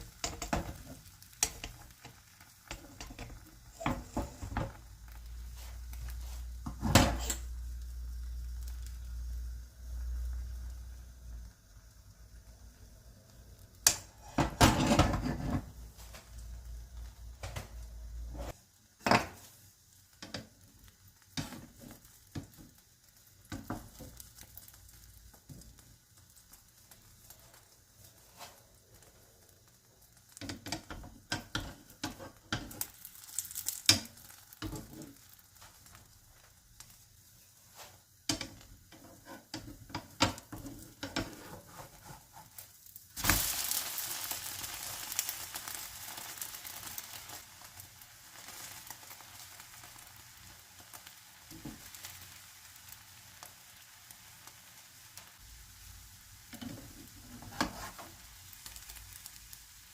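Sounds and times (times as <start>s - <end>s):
food sizzling: 0.0s - 59.9s.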